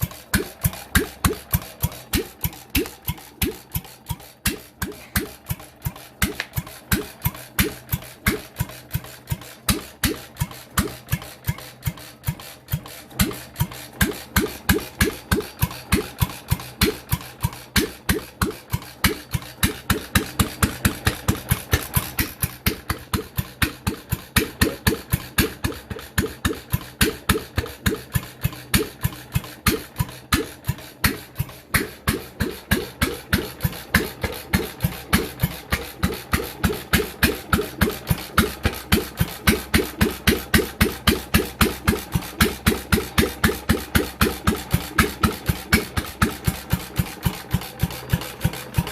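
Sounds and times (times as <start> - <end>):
stationary engine running: 0.0 - 48.9.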